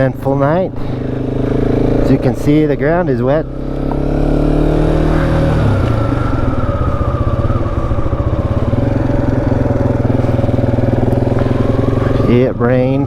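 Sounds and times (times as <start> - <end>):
motorcycle engine chugging: 0.0 - 13.0.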